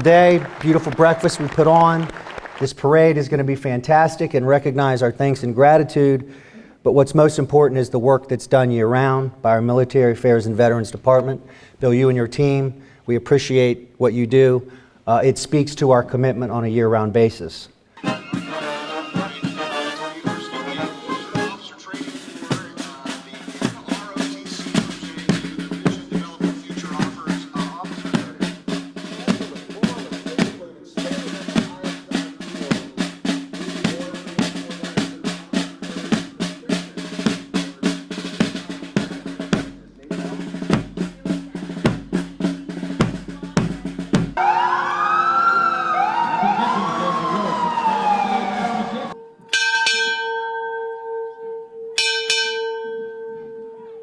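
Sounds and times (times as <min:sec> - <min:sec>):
marching snare drums: 0:00.0 - 0:02.7, 0:18.0 - 0:49.2
wailing rising and falling tones: 0:18.0 - 0:22.4, 0:44.4 - 0:49.2
bell ringing: 0:49.1 - 0:54.0.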